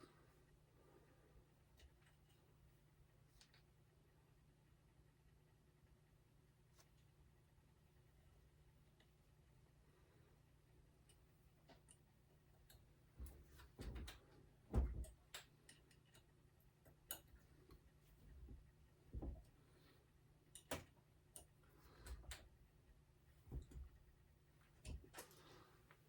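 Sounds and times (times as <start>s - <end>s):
clicks and taps of tools: 20.5s - 22.5s.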